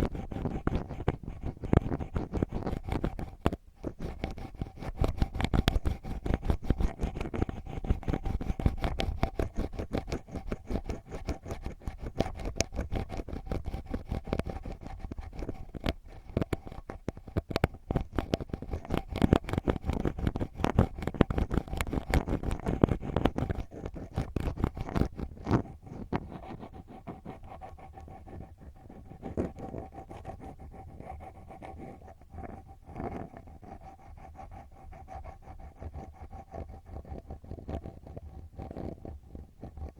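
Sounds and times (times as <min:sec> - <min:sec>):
ear pick scratching in ear: 0:00.0 - 0:27.5.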